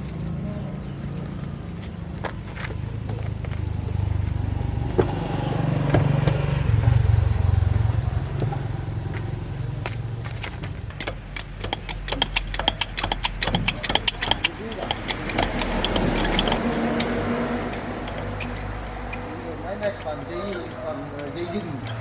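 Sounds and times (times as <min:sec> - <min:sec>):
engine rumbling: 0:00.0 - 0:22.0
sharp metallic clicks: 0:10.8 - 0:22.0.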